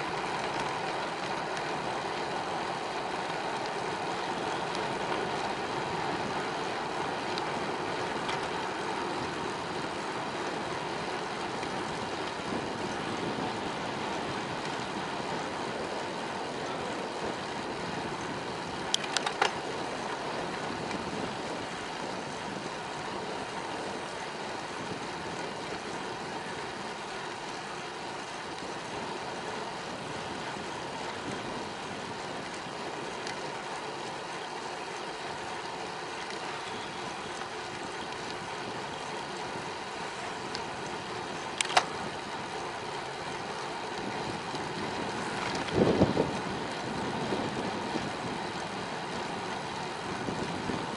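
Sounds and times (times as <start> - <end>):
bicycle rolling: 0.0 - 50.9
wind: 0.0 - 50.9
sharp clicks: 41.5 - 42.0.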